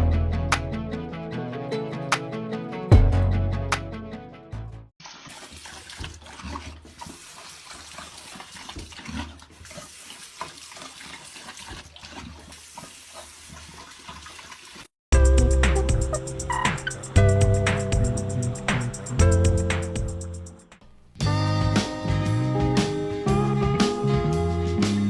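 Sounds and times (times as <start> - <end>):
music: 0.0 - 4.9, 15.2 - 25.0
water running and splashing: 5.0 - 19.9.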